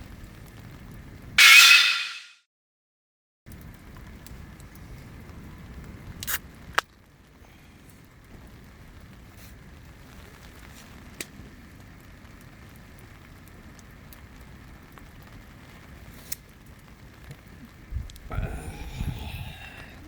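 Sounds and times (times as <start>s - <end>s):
campfire crackling: 3.5s - 20.0s
sharp pops from fire: 5.8s - 7.0s, 9.2s - 18.2s.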